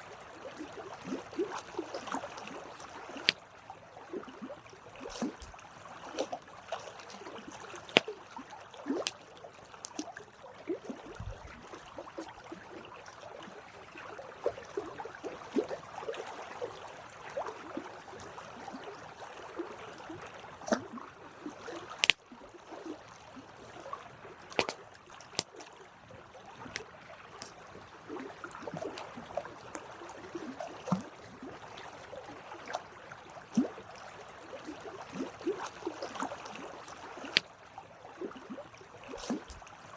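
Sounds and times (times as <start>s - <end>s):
campfire crackling and popping: 5.1s - 5.6s, 22.0s - 22.2s.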